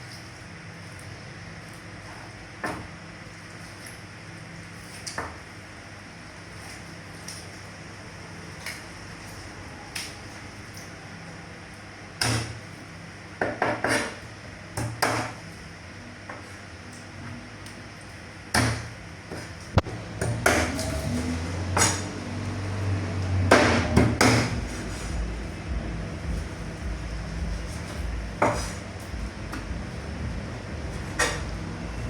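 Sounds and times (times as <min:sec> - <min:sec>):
low hum: 0:19.8 - 0:32.0.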